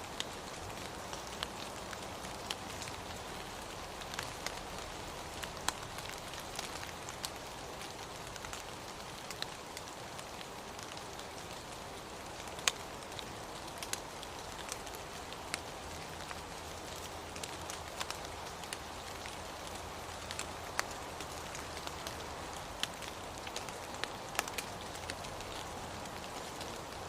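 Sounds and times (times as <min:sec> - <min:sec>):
steady rainfall: 0:00.0 - 0:27.0.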